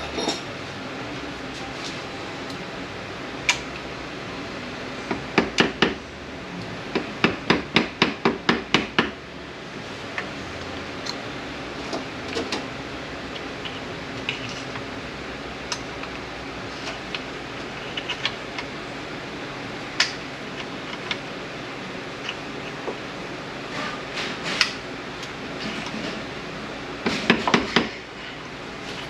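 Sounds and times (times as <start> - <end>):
fan hum: 0.0 - 29.0.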